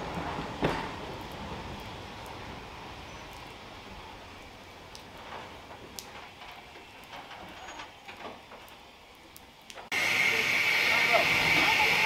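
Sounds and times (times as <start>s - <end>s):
train coaches rumbling: 0.0s - 9.2s, 9.9s - 12.0s
wheel-on-rail clicks: 4.9s - 8.9s
light wheel squeak: 7.5s - 8.2s.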